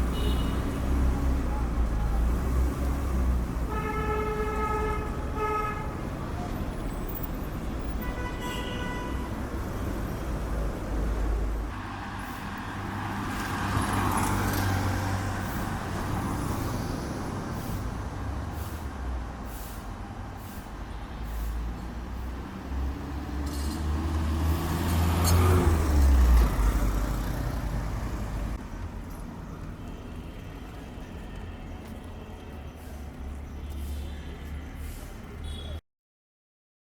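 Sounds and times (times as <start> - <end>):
traffic engines running: 0.0 - 35.8
vehicle horn tooting: 0.1 - 0.7, 3.7 - 6.0, 8.0 - 9.3, 35.4 - 35.8.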